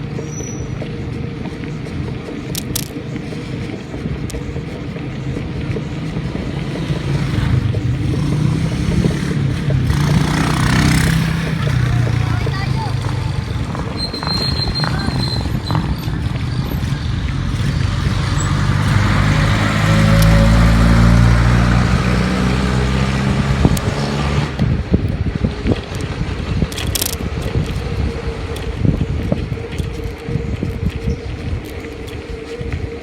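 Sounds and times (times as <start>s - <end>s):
wind buffeting microphone: 0.0s - 33.0s
vehicle engine passing by: 5.7s - 25.0s.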